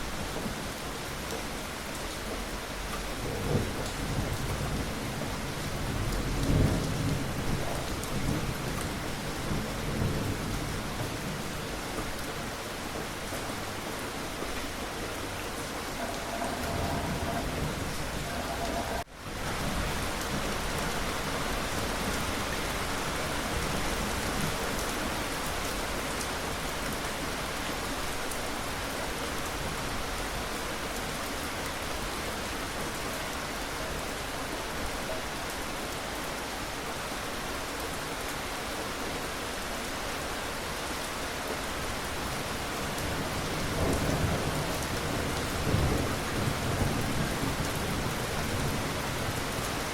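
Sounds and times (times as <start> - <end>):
steady rain hiss: 0.0 - 49.9
low rumble of thunder: 3.0 - 12.0, 15.1 - 20.9, 42.9 - 49.9.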